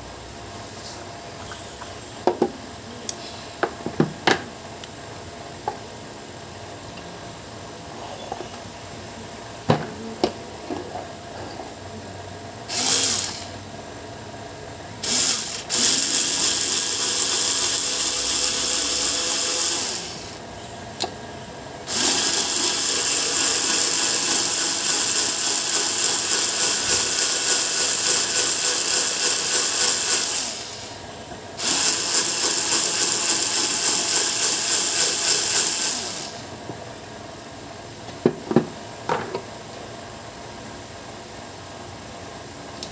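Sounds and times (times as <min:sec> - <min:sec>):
electric sewing machine running: 0:12.7 - 0:13.6, 0:15.0 - 0:20.4, 0:21.9 - 0:31.0, 0:31.6 - 0:36.5.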